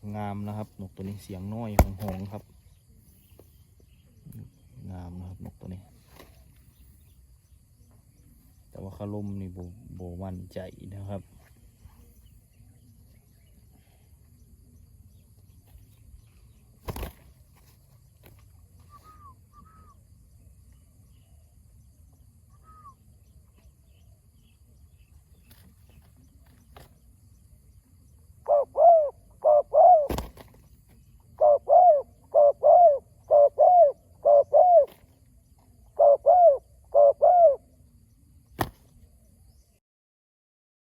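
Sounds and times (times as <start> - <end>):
dove cooing: 18.9 - 20.0, 28.4 - 30.5, 31.3 - 37.8.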